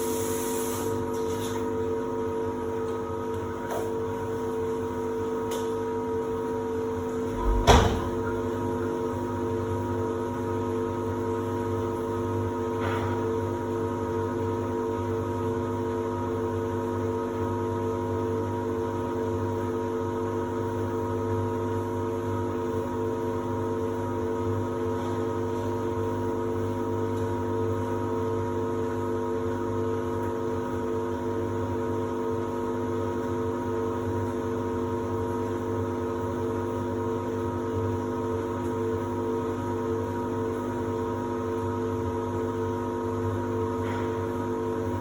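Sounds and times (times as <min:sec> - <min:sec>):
washer-dryer humming: 0:00.0 - 0:15.0.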